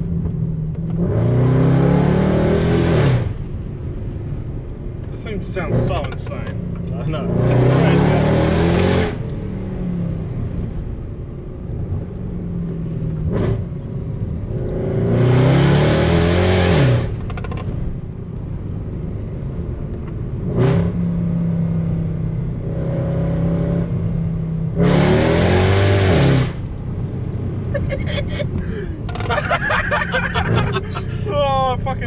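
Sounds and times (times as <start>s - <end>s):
car engine accelerating: 5.4s - 10.8s, 22.5s - 32.0s.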